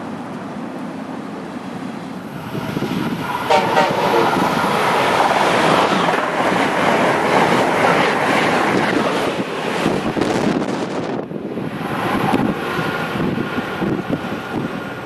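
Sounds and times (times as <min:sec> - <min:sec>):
train wheels rushing on rail: 0:00.0 - 0:15.0
train clatter: 0:02.7 - 0:11.2.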